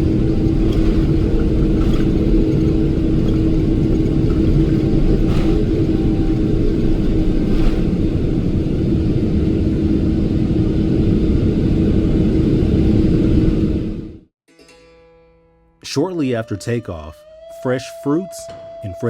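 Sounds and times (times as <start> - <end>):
airplane cabin engine rumble: 0.0 - 14.3.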